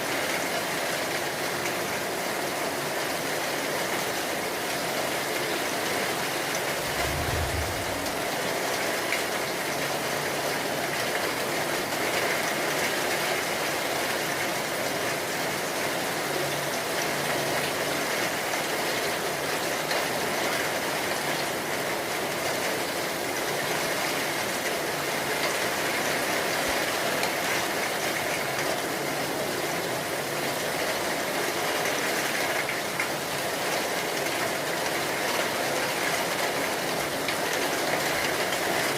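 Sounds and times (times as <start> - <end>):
heavy rain falling: 0.0 - 38.9
brief low rumble: 6.7 - 8.6.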